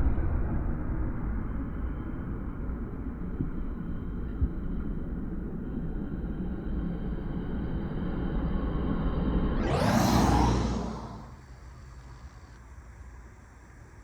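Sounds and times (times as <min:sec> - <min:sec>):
road vehicle passing by: 0:09.6 - 0:11.6.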